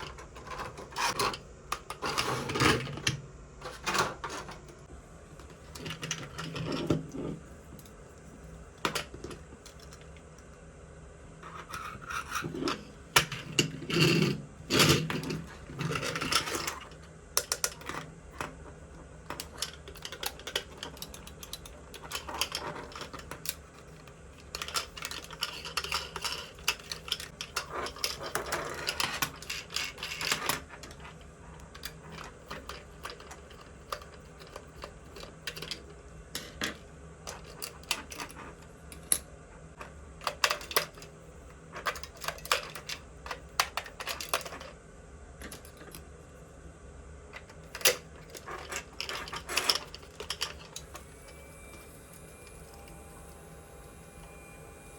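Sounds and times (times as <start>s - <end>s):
plastic toy parts clicking: 19.3s - 31.0s, 47.4s - 50.9s.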